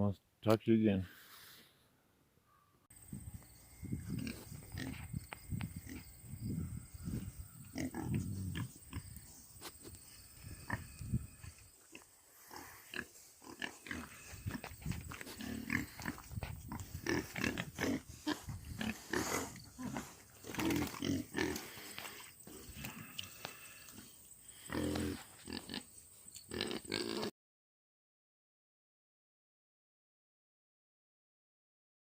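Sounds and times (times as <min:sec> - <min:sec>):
pigs grunting: 0:04.0 - 0:25.9, 0:26.5 - 0:27.3.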